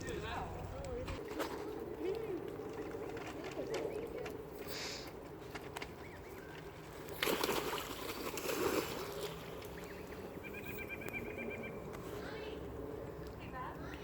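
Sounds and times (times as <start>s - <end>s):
water splashing and churning: 6.8s - 10.4s.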